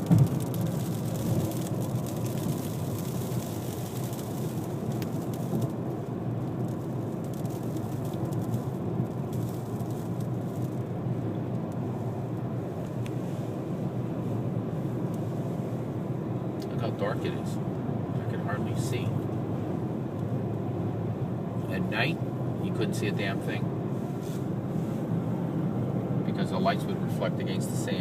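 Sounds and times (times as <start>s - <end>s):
sand ticking against car: 0.0s - 15.7s
road and wind noise: 0.0s - 28.0s.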